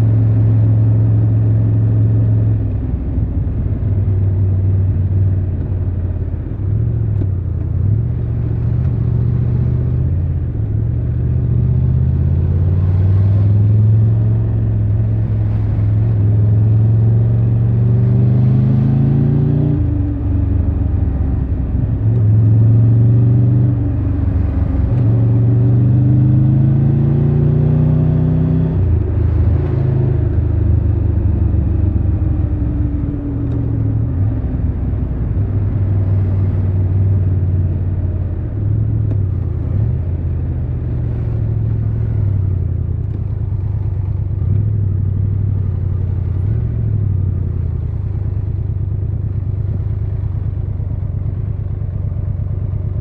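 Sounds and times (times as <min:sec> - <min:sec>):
motorcycle engine accelerating: 0:03.8 - 0:53.0.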